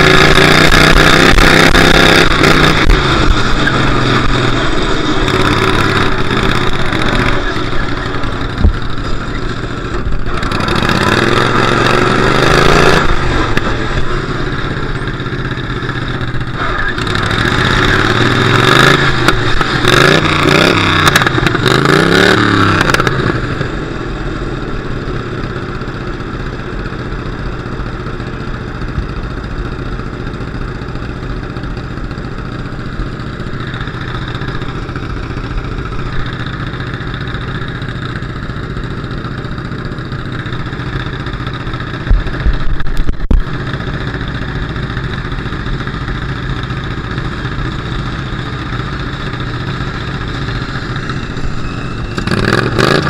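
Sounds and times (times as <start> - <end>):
car engine revving: 0.0 - 14.8.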